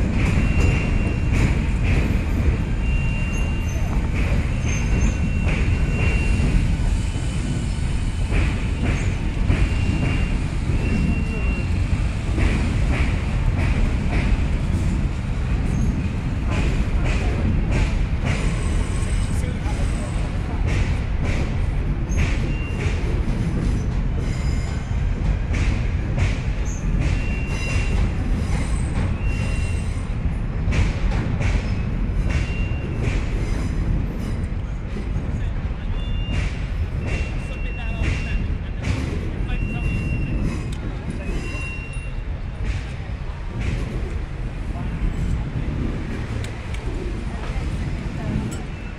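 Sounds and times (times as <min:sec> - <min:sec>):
train rumbling on bridge: 0:00.0 - 0:48.9
high wheel squeals: 0:02.8 - 0:07.3, 0:26.7 - 0:30.1, 0:41.2 - 0:42.2.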